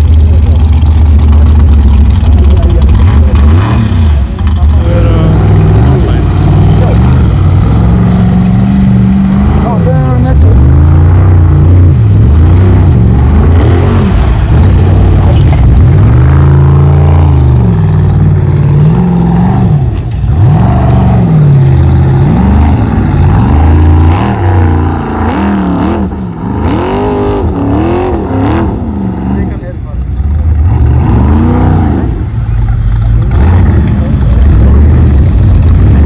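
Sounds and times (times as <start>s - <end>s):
truck engine revving hard: 0.0s - 36.0s.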